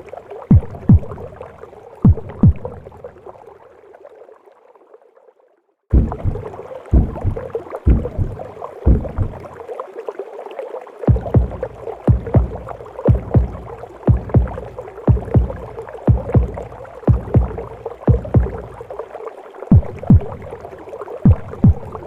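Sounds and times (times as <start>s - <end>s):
heartbeat thumps: 0.5s - 1.4s, 2.0s - 2.8s, 5.9s - 9.5s, 11.1s - 18.8s, 19.7s - 20.5s, 21.2s - 22.0s.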